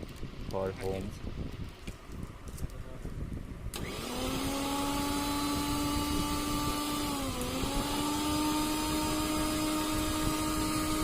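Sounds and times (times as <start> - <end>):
mixer grinder motor whining: 3.7 - 11.0.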